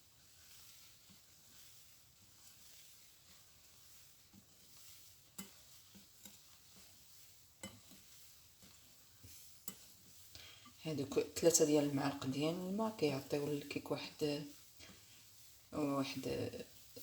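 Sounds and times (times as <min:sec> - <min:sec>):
stirring batter in a bowl: 0:00.0 - 0:17.0
utensil tapping a bowl: 0:07.6 - 0:08.2.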